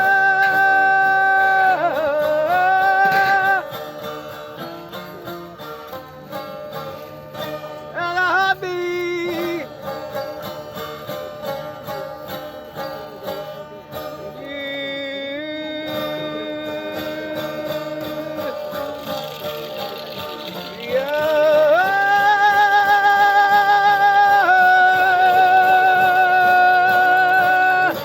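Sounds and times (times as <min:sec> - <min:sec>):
person singing: 0:00.0 - 0:03.8, 0:07.9 - 0:09.7, 0:14.0 - 0:28.0
plucked strings: 0:00.0 - 0:28.0.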